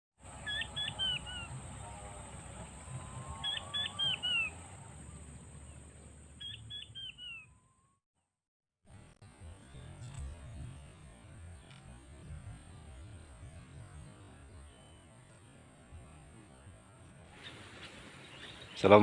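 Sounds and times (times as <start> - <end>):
steady high-pitched whine: 0.2 - 7.4, 8.9 - 19.0
bird calling whistled notes: 0.4 - 1.5, 3.3 - 4.6, 6.4 - 7.8.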